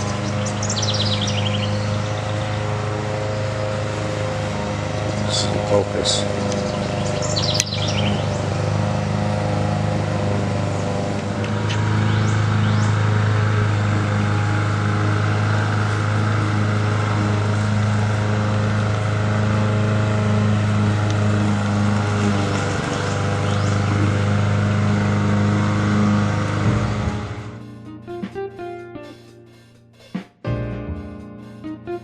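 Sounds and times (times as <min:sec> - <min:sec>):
motor humming: 0:00.0 - 0:27.8.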